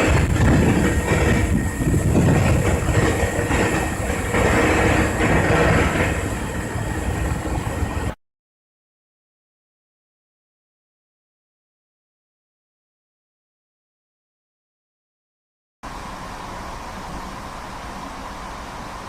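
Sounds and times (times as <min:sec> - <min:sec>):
loud rumble and hiss: 0:00.0 - 0:08.2, 0:15.8 - 0:19.0.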